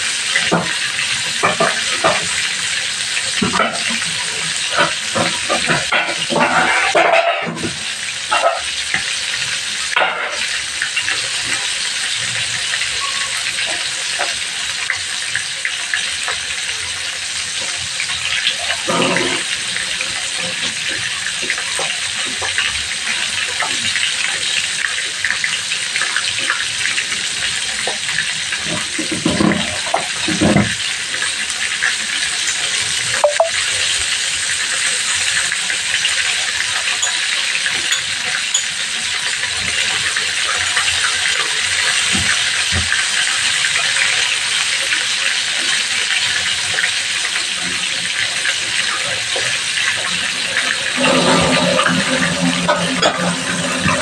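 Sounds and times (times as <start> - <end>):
chicken sizzling in oil: 0.0 - 54.0.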